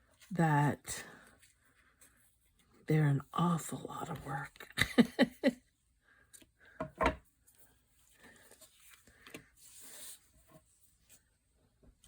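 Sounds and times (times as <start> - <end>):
soft paper scrape: 8.2 - 11.3.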